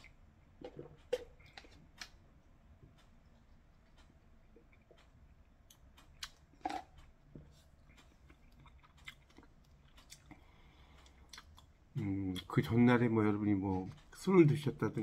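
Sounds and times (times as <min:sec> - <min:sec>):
chewing noodles: 0:07.8 - 0:11.7.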